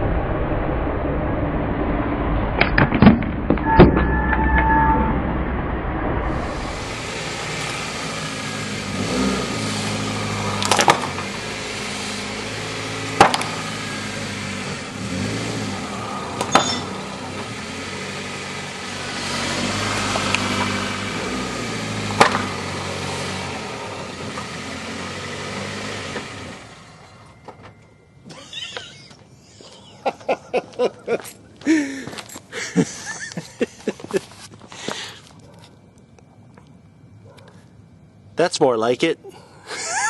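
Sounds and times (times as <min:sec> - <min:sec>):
car engine running slowly: 0:06.3 - 0:37.4
plastic headset cracking under tyres: 0:10.6 - 0:11.1.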